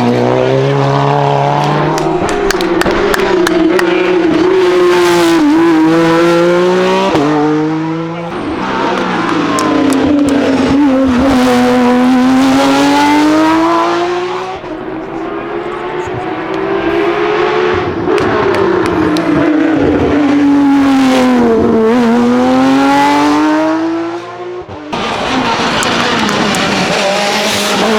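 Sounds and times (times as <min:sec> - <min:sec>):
race car engine at high revs: 0:00.0 - 0:27.9.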